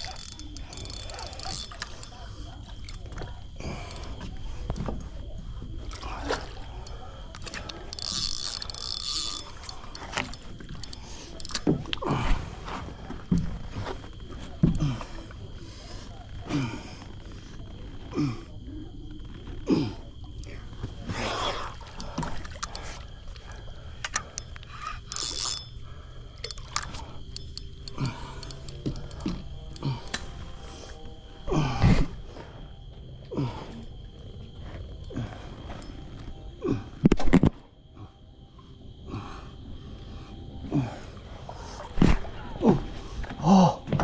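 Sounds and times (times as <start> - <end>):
fishing reel clicking: 0.0 - 4.2, 6.7 - 11.7, 24.1 - 30.4.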